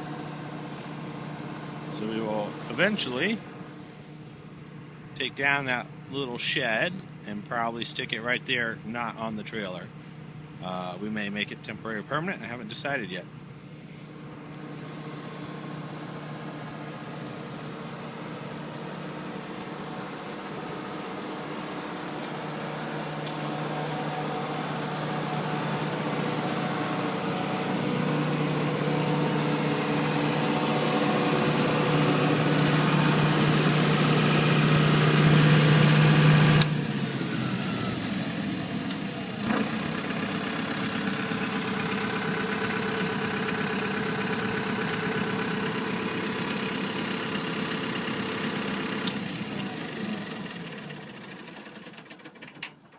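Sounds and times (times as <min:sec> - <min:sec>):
diesel generator running: 0:00.0 - 0:52.9.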